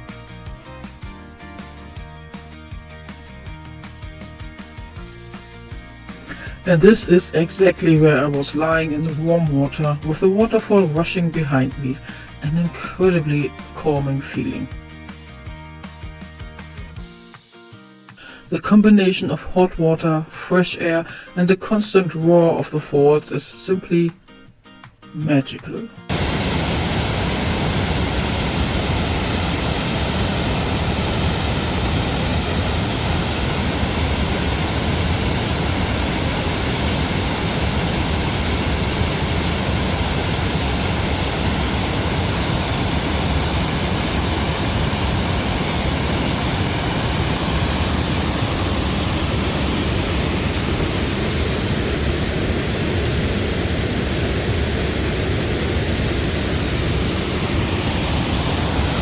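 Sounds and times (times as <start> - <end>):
waterfall rushing: 26.1 - 59.0.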